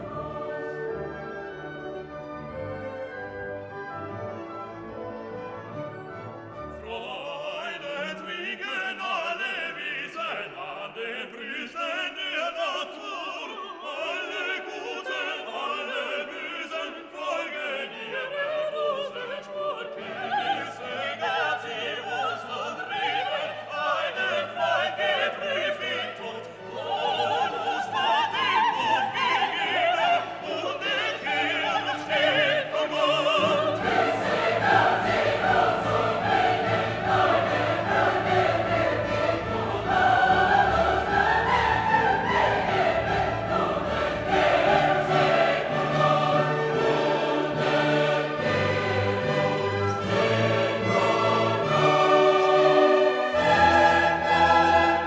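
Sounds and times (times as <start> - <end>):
operatic singing: 0.0 - 3.1, 6.5 - 55.0
orchestra: 0.0 - 55.0.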